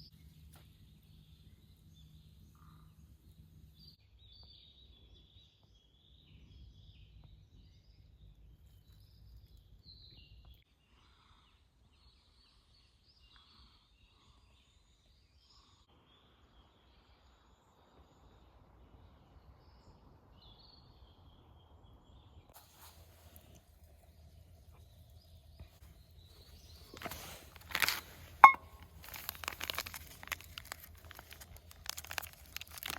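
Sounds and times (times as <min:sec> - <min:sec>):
faint birds chirping: 0:00.0 - 0:32.9
low background rumble: 0:18.1 - 0:32.9.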